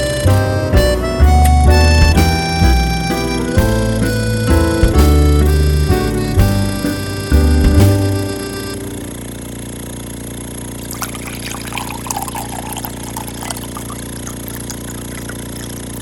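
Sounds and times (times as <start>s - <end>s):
vacuum pump humming: 6.4s - 16.0s.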